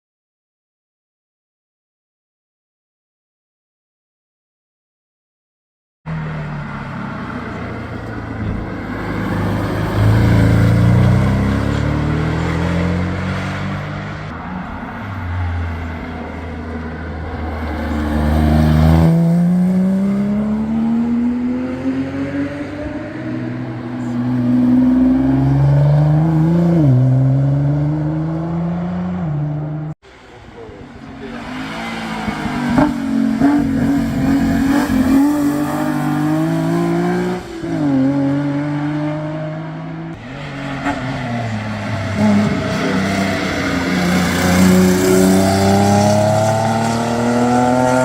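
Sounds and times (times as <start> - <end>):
race car engine accelerating: 6.1 - 14.3, 17.4 - 30.0, 30.6 - 48.0.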